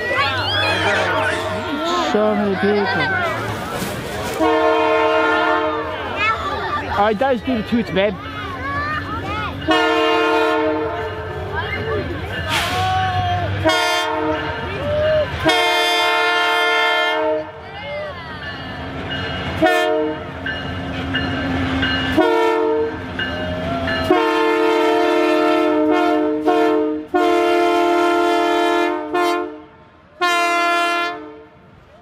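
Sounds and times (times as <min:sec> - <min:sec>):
locomotive air horn blasts: 0:04.4 - 0:05.9, 0:09.7 - 0:11.0, 0:13.6 - 0:14.7, 0:15.4 - 0:17.5, 0:19.6 - 0:20.3, 0:22.1 - 0:23.0, 0:24.0 - 0:31.5.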